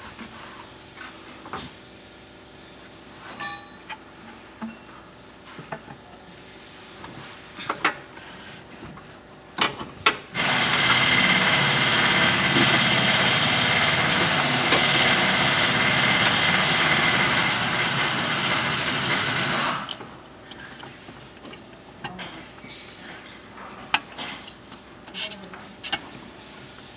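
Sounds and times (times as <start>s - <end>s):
loud steady machine noise: 10.3s - 20.0s.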